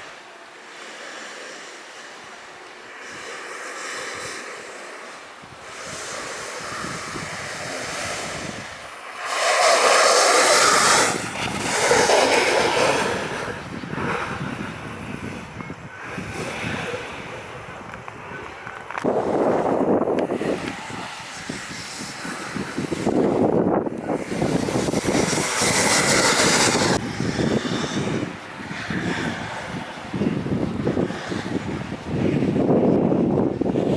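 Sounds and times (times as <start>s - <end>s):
wind rushing on microphone: 1.1s - 33.9s
snowboard edges scraping snow: 3.0s - 14.7s, 18.3s - 31.6s.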